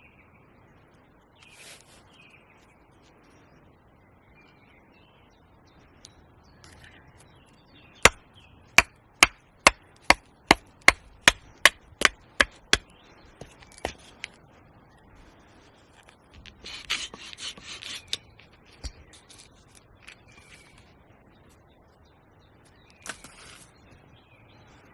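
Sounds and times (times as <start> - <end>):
axe chopping wood: 8.0 - 8.2, 8.8 - 14.0.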